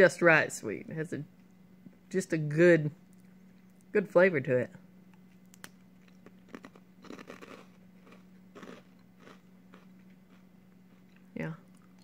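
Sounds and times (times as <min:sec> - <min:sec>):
crunchy snack being chewed: 0:05.1 - 0:12.0.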